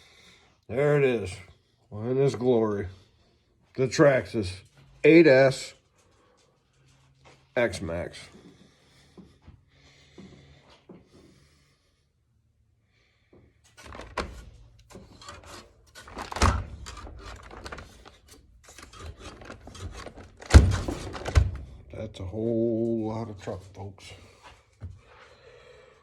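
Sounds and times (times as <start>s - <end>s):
objects rubbing and scraping: 13.7s - 21.9s.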